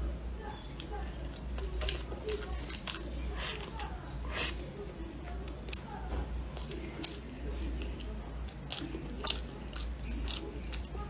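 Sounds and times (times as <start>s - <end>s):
steady low hum: 0.0s - 11.0s
chewing food: 0.5s - 11.0s.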